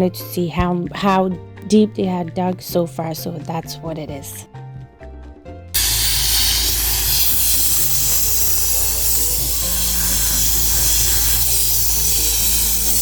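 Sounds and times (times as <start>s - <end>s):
water and air spray hissing: 5.8s - 13.0s.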